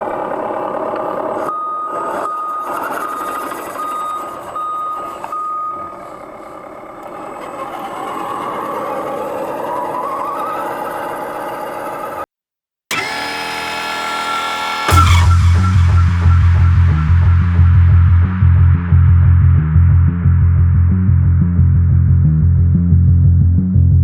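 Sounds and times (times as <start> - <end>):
mechanical running noise: 0.0 - 5.2, 12.9 - 16.4
truck reversing alarm beeping: 1.4 - 11.6, 12.9 - 18.1
rising whine: 12.9 - 22.6.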